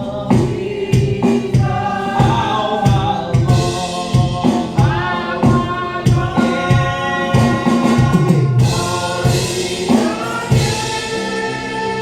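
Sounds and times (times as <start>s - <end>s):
congregation singing gospel song: 0.0s - 12.0s
instrumental accompaniment: 0.0s - 12.0s
steady drum beat: 0.0s - 12.0s.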